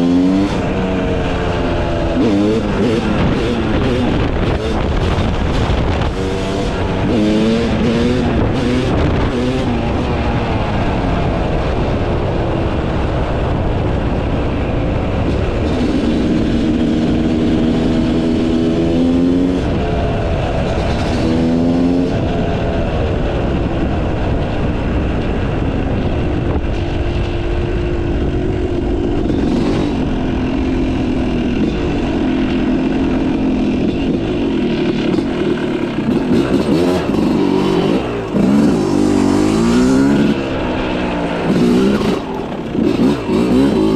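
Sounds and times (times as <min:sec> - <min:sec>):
motocross engine revving: 0:00.0 - 0:11.0, 0:15.2 - 0:23.2, 0:28.8 - 0:43.9.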